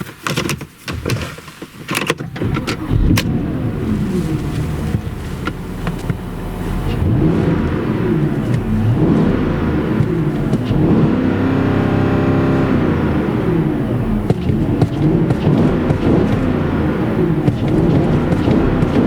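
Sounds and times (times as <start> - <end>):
car engine accelerating through gears: 2.3 - 19.0.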